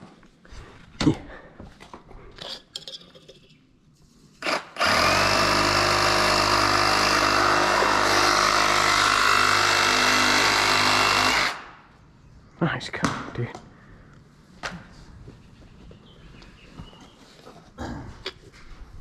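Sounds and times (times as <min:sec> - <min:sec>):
power saw cutting pipe: 0:04.4 - 0:11.7.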